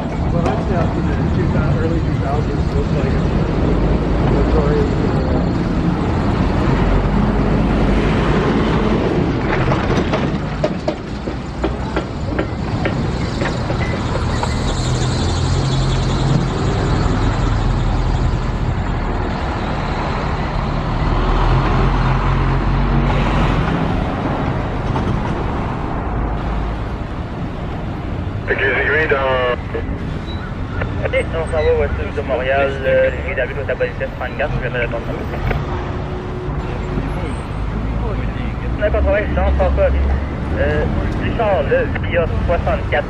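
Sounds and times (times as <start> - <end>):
train wheels clicking and clattering: 9.4 - 15.0.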